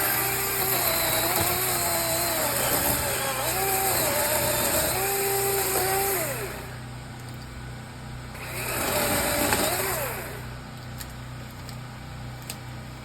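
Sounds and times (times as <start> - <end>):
chainsaw running at high revs: 0.0 - 6.8, 8.4 - 10.5.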